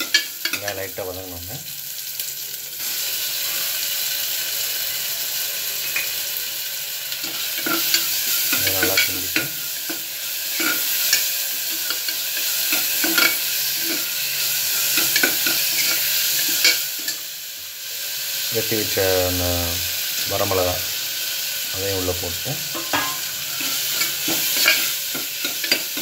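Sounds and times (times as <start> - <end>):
food sizzling in oil: 0.0 - 26.0
metal ladle scraping pot: 22.7 - 26.0.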